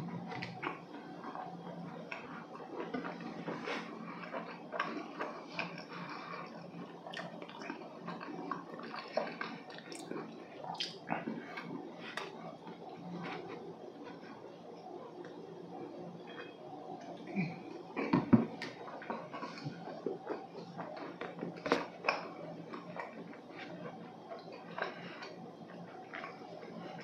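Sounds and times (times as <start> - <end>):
person chewing: 2.1 - 14.4, 17.9 - 27.0.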